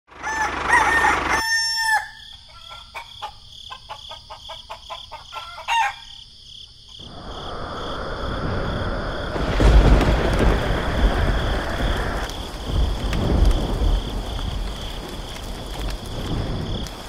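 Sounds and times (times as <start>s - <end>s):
rooster crowing: 0.1s - 6.2s
rain hissing: 7.0s - 17.0s.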